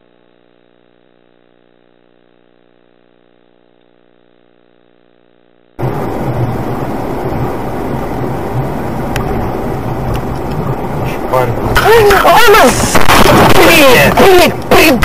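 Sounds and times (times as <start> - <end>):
faint engine hum: 5.8 - 15.0
road and engine noise inside car: 5.8 - 15.0.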